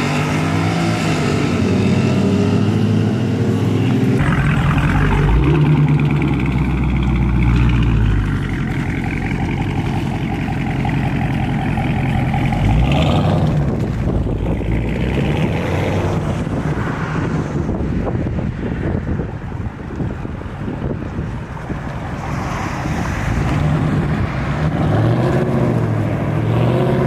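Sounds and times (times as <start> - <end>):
vehicle engine running: 3.6 - 16.6.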